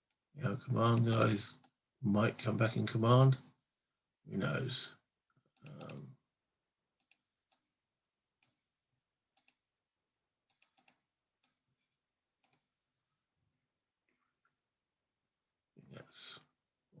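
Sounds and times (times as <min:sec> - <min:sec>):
cardboard counters clicking on map: 0:00.1 - 0:01.8, 0:05.6 - 0:06.0.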